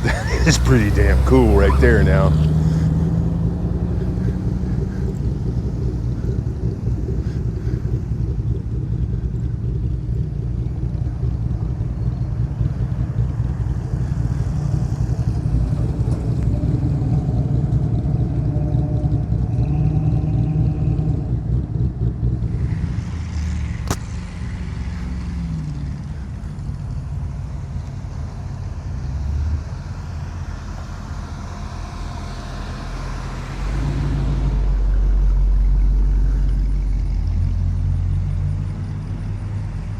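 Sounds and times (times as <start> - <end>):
car engines rumbling past: 0.0 - 39.9
sharp click: 23.8 - 24.2.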